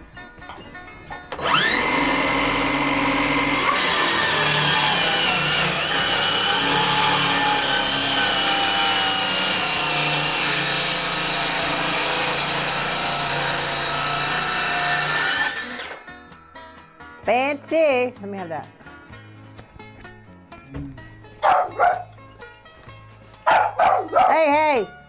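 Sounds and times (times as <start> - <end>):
power saw cutting wood: 1.3 - 16.1.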